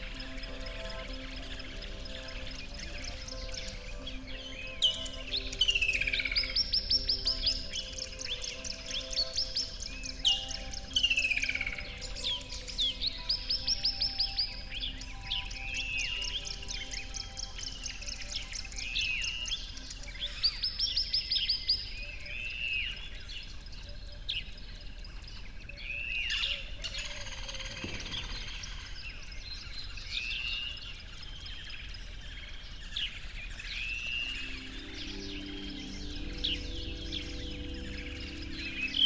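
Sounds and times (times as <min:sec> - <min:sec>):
songbird arched call: 0:00.0 - 0:23.0.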